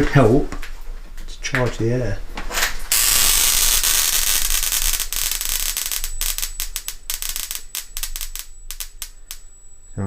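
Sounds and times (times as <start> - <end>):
electrical discharge crackling: 2.8 - 9.5
thin high whine: 2.9 - 10.0.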